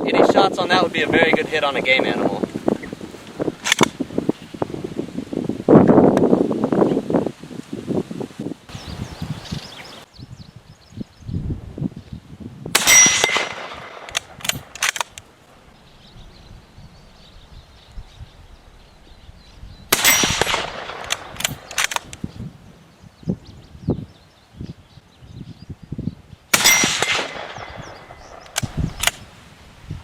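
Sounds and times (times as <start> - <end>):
wind buffeting microphone: 0.0 - 30.0
rifle bolt clicks: 3.6 - 4.0, 12.8 - 15.3, 20.0 - 22.2, 26.6 - 29.2
rifle shots: 12.8 - 15.2, 19.9 - 22.2, 26.6 - 29.2.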